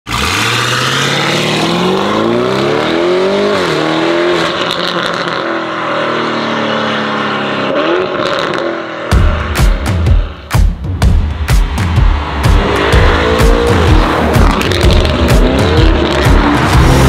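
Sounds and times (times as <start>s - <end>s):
car engine accelerating hard: 0.1s - 9.2s, 11.9s - 17.0s.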